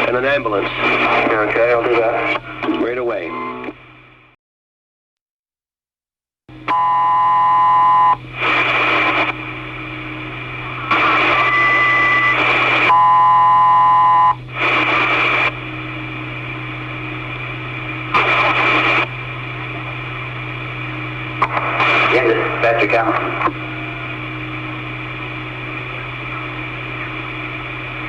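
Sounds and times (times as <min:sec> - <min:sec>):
radio static bursts: 0:00.0 - 0:03.8, 0:08.1 - 0:09.6, 0:10.4 - 0:15.6, 0:18.0 - 0:20.1, 0:21.3 - 0:24.2
buzzy radio tones: 0:00.0 - 0:04.1, 0:06.7 - 0:28.0
radio hum: 0:00.0 - 0:04.4, 0:06.6 - 0:28.0.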